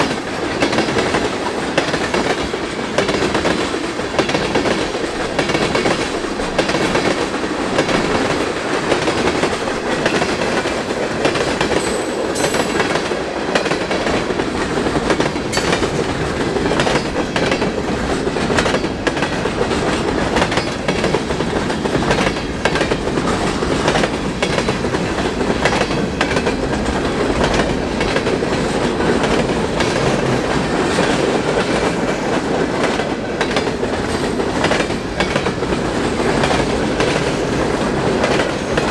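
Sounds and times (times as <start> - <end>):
train wheels clicking over rail joints: 0.0 - 38.9.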